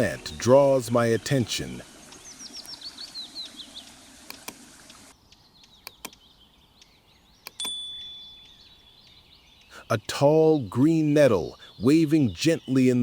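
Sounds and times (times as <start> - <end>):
forest ambience: 0.0 - 13.0
sharp clicks: 4.3 - 4.6, 5.3 - 6.2, 6.8 - 7.8.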